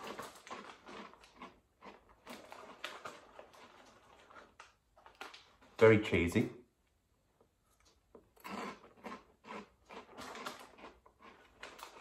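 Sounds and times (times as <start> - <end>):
person chewing crunchy snack: 0.0 - 5.4, 7.8 - 12.0.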